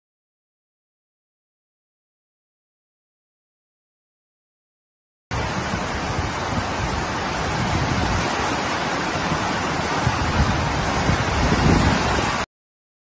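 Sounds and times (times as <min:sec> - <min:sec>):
heavy rain pouring: 0:05.3 - 0:12.5.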